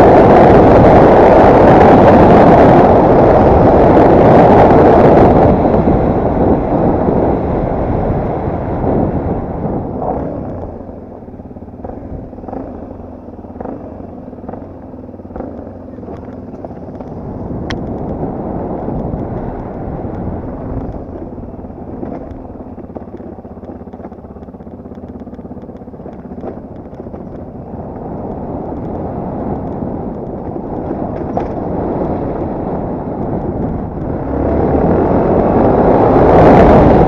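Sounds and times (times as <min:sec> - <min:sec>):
motorcycle engine running: 0:00.0 - 0:37.0
clicks and ticks of clatter: 0:22.0 - 0:31.7.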